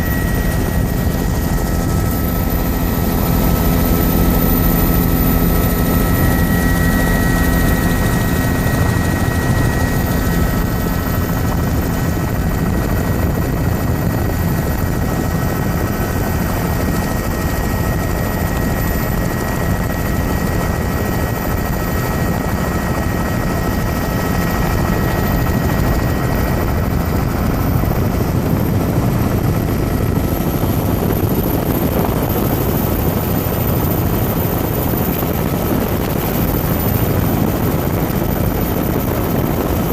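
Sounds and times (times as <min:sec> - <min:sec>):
thin high whine: 0:00.0 - 0:13.5
helicopter rotor and engine: 0:00.0 - 0:39.9.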